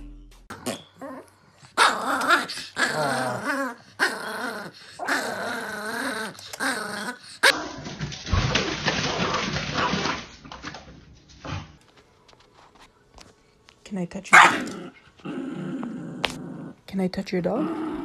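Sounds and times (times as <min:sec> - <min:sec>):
small dog growling: 0:00.5 - 0:07.8, 0:14.4 - 0:16.8, 0:17.5 - 0:18.0
small dog barking: 0:14.3 - 0:14.8.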